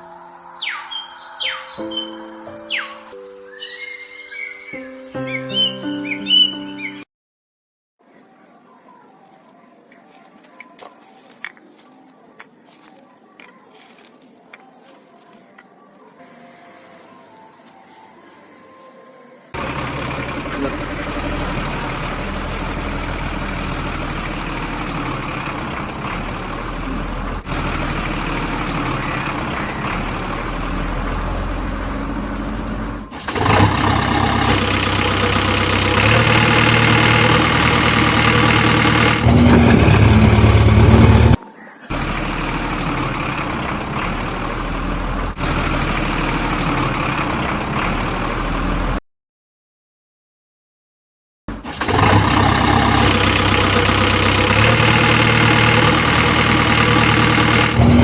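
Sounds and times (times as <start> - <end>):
motor running: 19.6 - 45.0, 51.7 - 58.0.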